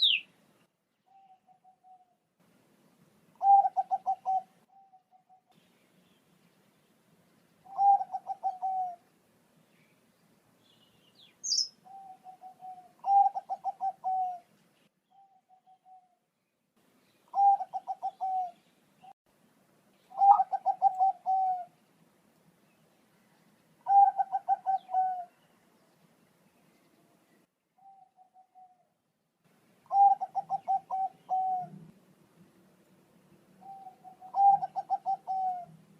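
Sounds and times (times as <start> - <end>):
dove cooing: 3.4 - 5.5, 7.6 - 9.0, 11.5 - 14.5, 17.3 - 18.6, 20.1 - 21.8, 23.8 - 25.4, 27.8 - 28.9, 29.9 - 31.9, 33.6 - 35.8.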